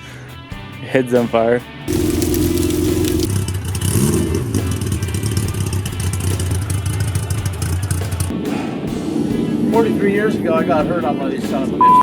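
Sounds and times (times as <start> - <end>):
motorcycle engine running: 1.9 - 8.3.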